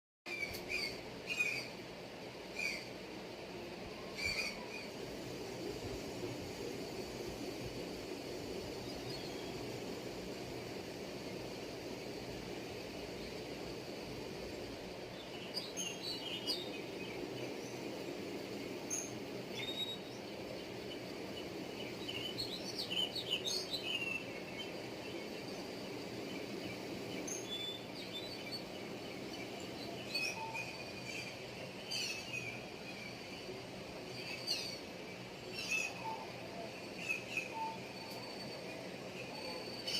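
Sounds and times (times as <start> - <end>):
steady low background noise: 0.3 - 39.9
birds chirping: 14.9 - 39.9.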